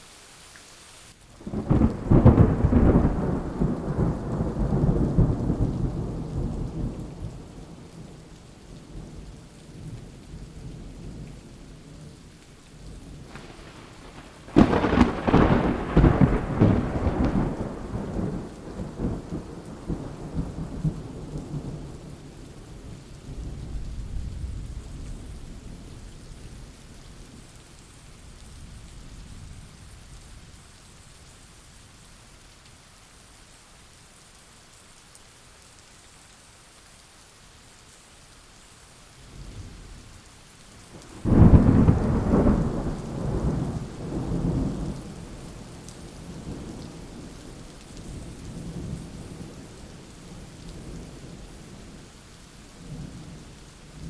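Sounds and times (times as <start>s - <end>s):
steady rain: 0.0s - 54.0s
loud thunderclap: 1.5s - 7.0s, 13.2s - 21.8s, 41.0s - 45.4s
rolling thunder: 1.5s - 7.9s, 13.2s - 22.3s, 41.0s - 51.4s.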